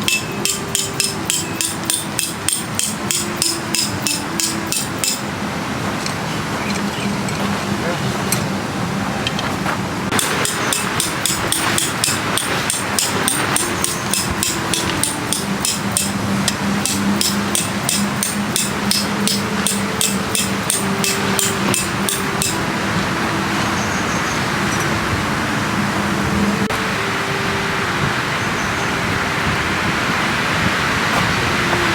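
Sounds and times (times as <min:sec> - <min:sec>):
hammer striking tent peg: 0:00.0 - 0:05.3, 0:10.1 - 0:22.6.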